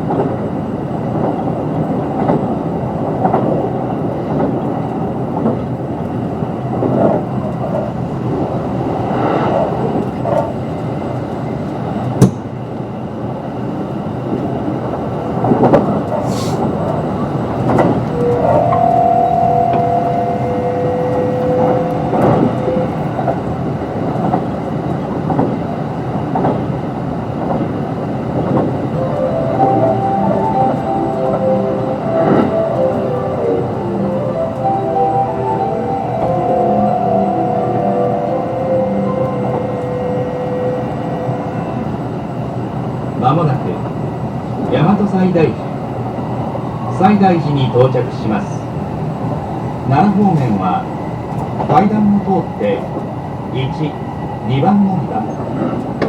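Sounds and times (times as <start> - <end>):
train wheels rumbling on track: 0.0 - 56.0
rail-joint knocks: 12.1 - 12.5
pair of steady tones: 18.0 - 23.6, 28.7 - 42.3.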